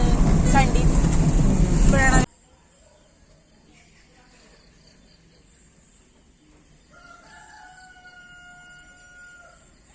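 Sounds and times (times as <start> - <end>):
faint rooster crowing: 6.8 - 9.9.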